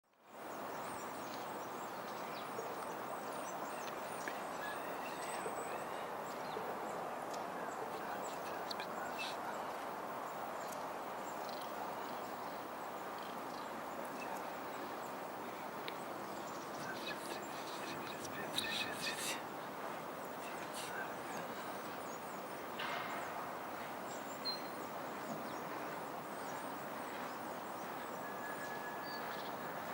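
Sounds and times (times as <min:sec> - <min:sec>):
steady rushing background noise: 0:03.0 - 0:29.9
birds chirping and calling: 0:16.2 - 0:19.4.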